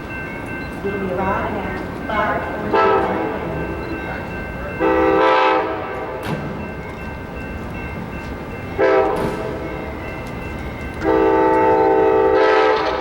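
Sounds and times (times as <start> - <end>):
train rumbling: 0.0 - 13.0
train horn blasts: 2.7 - 3.5, 4.8 - 6.3, 8.8 - 9.6, 11.0 - 13.0.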